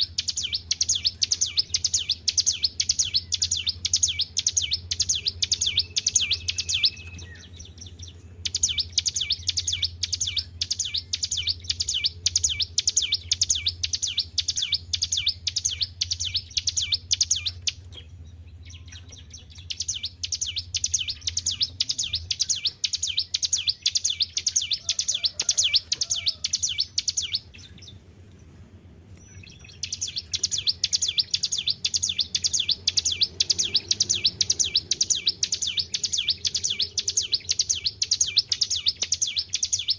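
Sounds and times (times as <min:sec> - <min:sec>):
bird singing high repeated notes: 0:00.0 - 0:28.0, 0:29.2 - 0:39.9
steady low hum: 0:25.8 - 0:39.3.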